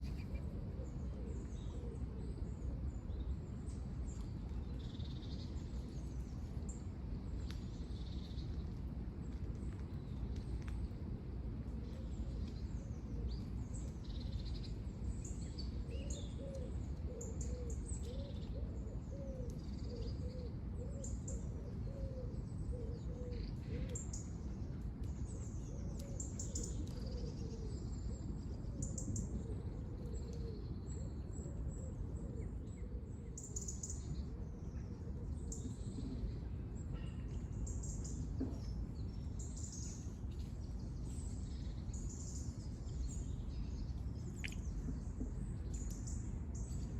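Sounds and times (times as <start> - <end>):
small birds chirping: 37.6 - 46.9.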